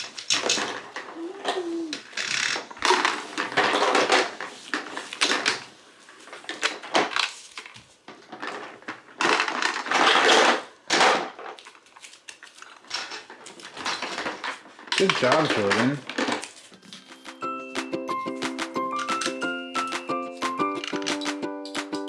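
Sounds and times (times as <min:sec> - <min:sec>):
toy pieces rattling: 0:18.4 - 0:22.0.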